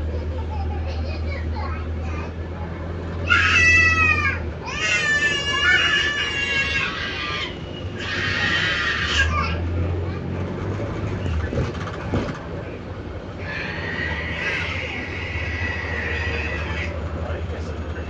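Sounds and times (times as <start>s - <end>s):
bus engine drone: 0.0s - 18.0s
children squealing: 3.2s - 10.2s, 13.3s - 17.2s.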